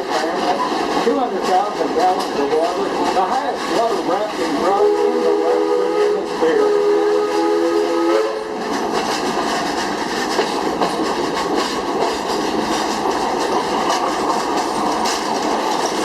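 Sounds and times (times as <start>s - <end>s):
train cars clickety-clack on track: 0.0s - 16.0s
steam train whistle: 4.6s - 8.7s.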